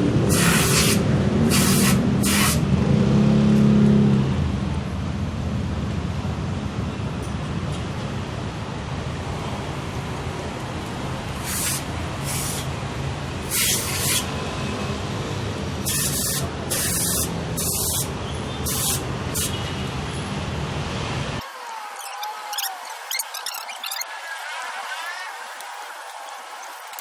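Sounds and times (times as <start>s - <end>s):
aerosol spray hissing: 0.3s - 2.6s, 11.4s - 12.7s, 13.5s - 14.3s, 15.8s - 18.1s, 18.7s - 19.6s.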